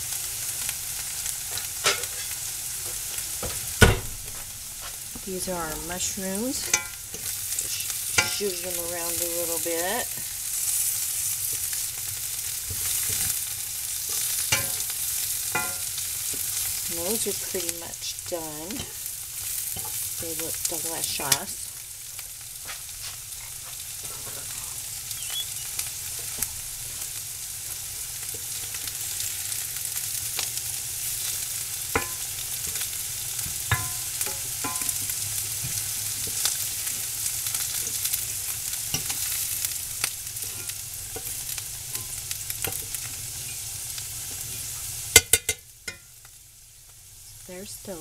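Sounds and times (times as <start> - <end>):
vegetables sizzling in pans: 0.0 - 48.0
fork clinking on cast iron: 1.5 - 2.4, 6.6 - 7.3, 8.2 - 8.6, 14.1 - 16.4, 31.9 - 32.8, 33.7 - 35.1, 40.4 - 43.6, 45.2 - 46.1.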